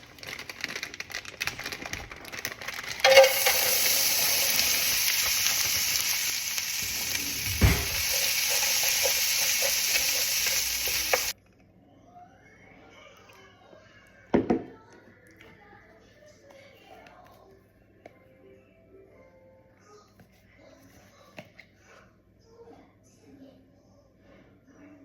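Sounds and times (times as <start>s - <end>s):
fried rice sizzling in a pan: 2.5s - 11.4s
stirring knocks: 3.0s - 11.3s
thump: 7.4s - 8.0s.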